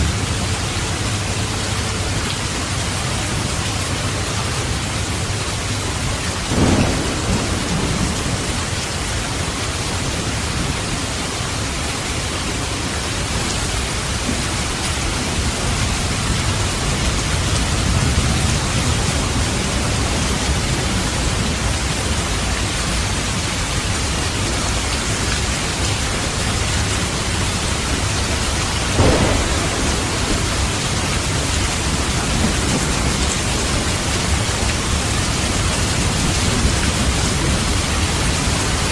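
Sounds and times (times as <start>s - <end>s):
steady rain: 0.0s - 38.9s
sharp thunder claps: 6.5s - 9.3s, 28.9s - 34.9s
low rumbling thunder: 6.5s - 10.7s, 27.6s - 38.9s.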